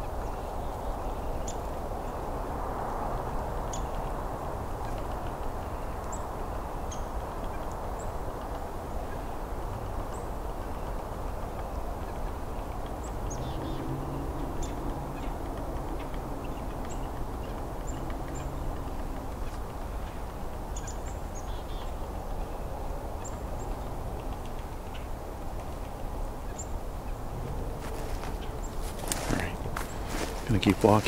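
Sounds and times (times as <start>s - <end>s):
small birds calling: 3.4s - 31.0s.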